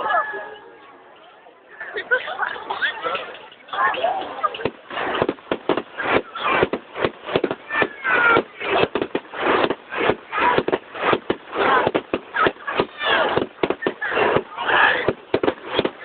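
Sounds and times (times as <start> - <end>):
onlookers' voices: 0.0 - 16.0
fireworks bangs and crackles: 4.2 - 16.0.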